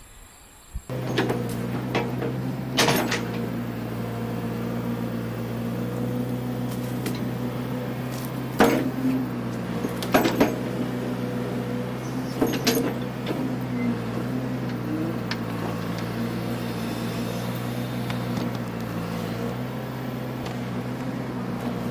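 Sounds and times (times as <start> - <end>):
sharp metal clanks and knocks: 0.9 - 3.5, 8.1 - 10.9, 12.1 - 13.6
backhoe engine running: 0.9 - 21.9.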